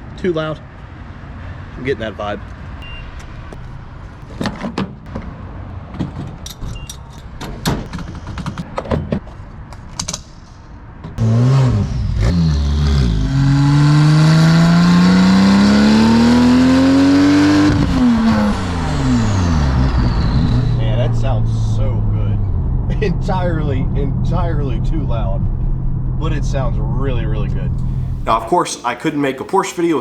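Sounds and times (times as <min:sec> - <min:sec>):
car engine accelerating: 0:11.2 - 0:28.5.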